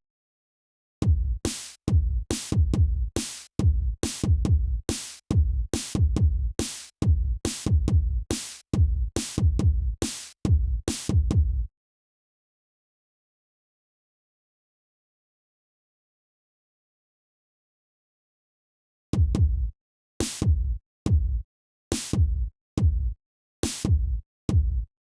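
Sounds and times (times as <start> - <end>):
drum machine beat: 1.0 - 11.6, 19.2 - 21.4, 22.1 - 23.2, 23.8 - 24.9.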